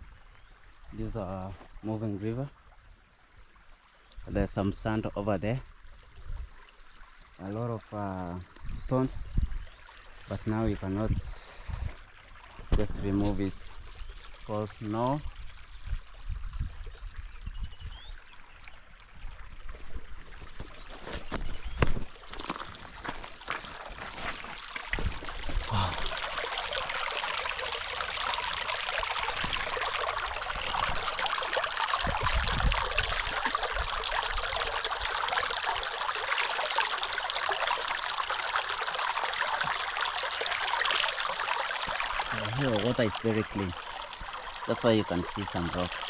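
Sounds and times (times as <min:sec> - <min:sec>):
low thumps and knocks: 0:24.0 - 0:26.0.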